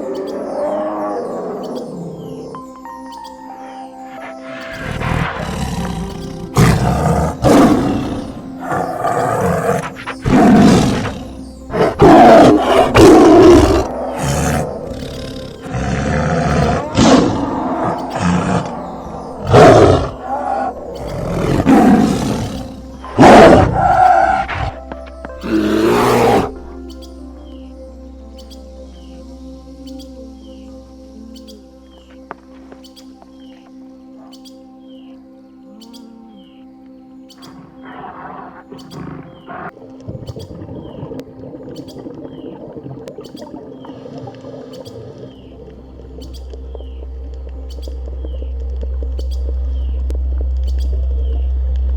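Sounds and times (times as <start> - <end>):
background music: 0.0 - 51.9
big cat roaring and growling: 4.6 - 24.8, 25.4 - 26.6.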